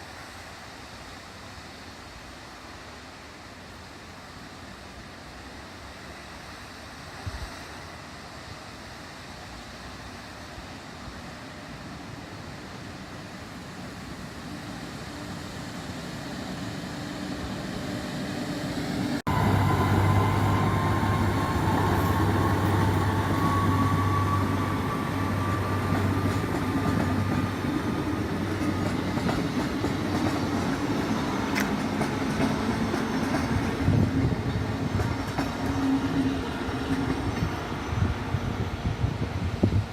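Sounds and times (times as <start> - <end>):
train passing: 0.0 - 39.9.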